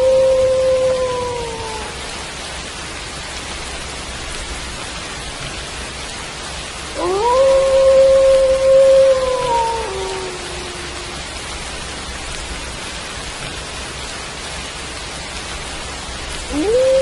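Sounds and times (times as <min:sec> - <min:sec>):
wolf howling: 0:00.0 - 0:02.1, 0:07.0 - 0:11.3, 0:16.5 - 0:17.0
steady rain: 0:00.0 - 0:17.0.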